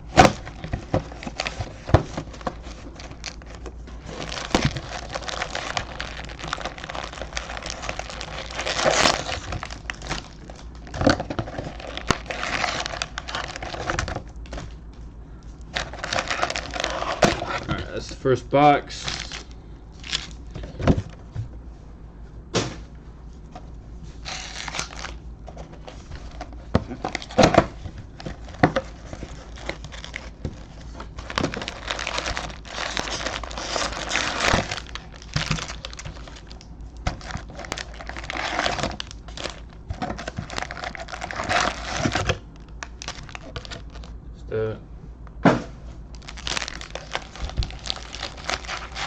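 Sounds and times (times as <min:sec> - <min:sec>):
plastic wrapping crinkling and tearing: 0:00.1 - 0:14.8, 0:15.6 - 0:17.7, 0:19.0 - 0:20.5, 0:24.2 - 0:44.1, 0:46.1 - 0:49.0.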